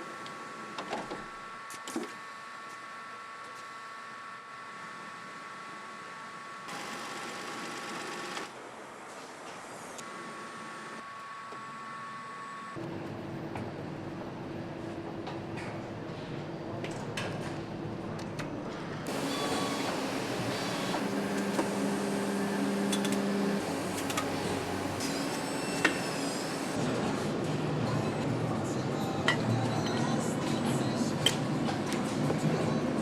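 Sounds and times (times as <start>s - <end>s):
machinery humming: 19.1s - 26.8s.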